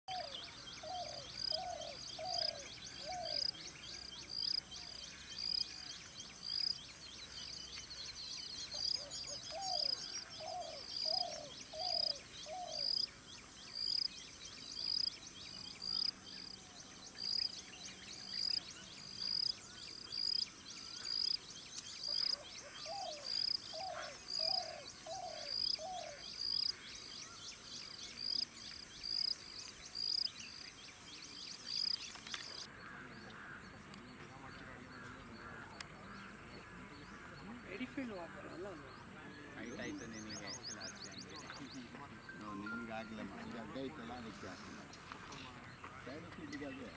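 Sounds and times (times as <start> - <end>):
dove cooing: 0.1 - 3.6, 8.8 - 13.0, 22.1 - 26.3
high chirp: 40.1 - 45.5.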